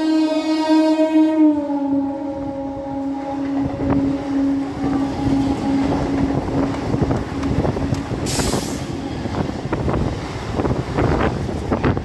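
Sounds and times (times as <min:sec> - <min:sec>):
steady horn tone: 0:00.0 - 0:09.0
electric train passing at speed: 0:00.0 - 0:12.0
brief hiss: 0:08.3 - 0:08.9.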